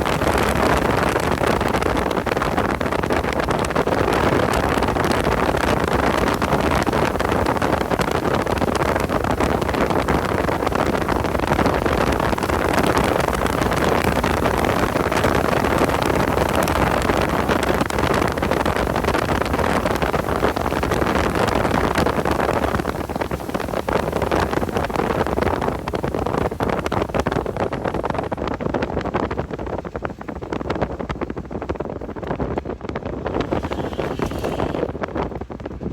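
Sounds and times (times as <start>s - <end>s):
wind noise: 0.0s - 35.9s
road noise: 31.9s - 35.9s.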